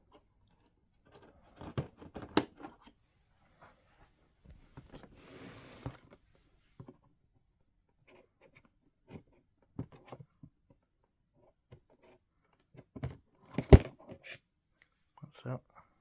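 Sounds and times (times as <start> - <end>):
cardboard box rustling scrape: 5.0 - 6.1.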